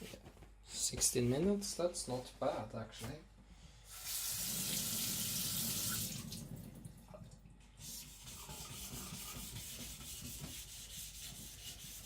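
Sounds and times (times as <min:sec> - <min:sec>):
water running from a tap: 0:03.9 - 0:06.9
knife rubbing on a whetstone: 0:08.0 - 0:12.0.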